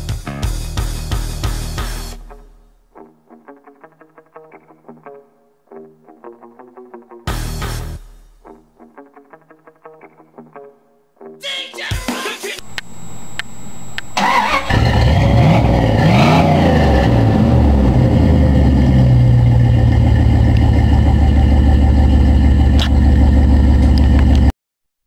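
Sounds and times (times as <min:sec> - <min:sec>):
engine idling loudly: 0:14.2 - 0:24.5
truck engine starting and revving: 0:14.2 - 0:24.5.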